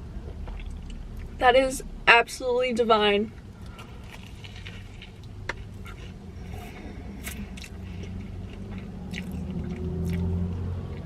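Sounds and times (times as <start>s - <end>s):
low steady hum: 0.0s - 11.0s
close chewing wet mouth sounds: 0.2s - 1.4s, 3.4s - 11.0s.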